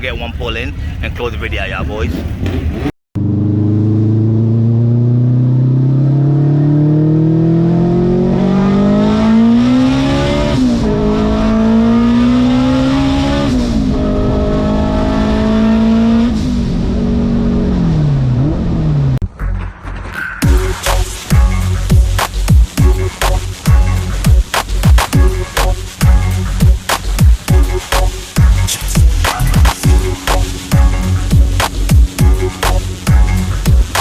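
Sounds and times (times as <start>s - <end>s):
car engine accelerating hard: 2.1s - 19.2s, 28.3s - 34.0s.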